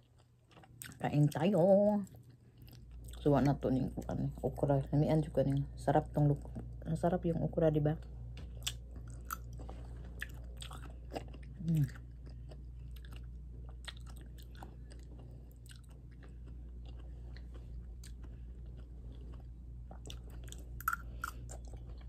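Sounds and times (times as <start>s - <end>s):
person chewing food: 0.0s - 1.0s, 2.0s - 3.3s, 8.3s - 22.0s.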